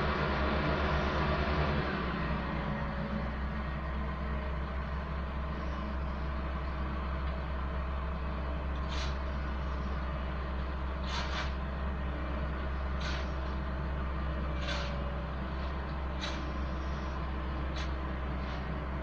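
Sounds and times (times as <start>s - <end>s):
diesel engine humming: 0.0s - 19.0s
short hiss: 11.0s - 11.6s.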